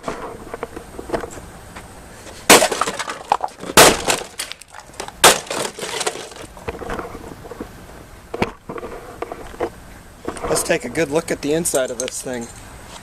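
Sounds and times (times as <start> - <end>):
axe smashing coffee maker: 2.5 - 4.6, 5.2 - 6.4
broken pieces clattering: 2.5 - 6.6.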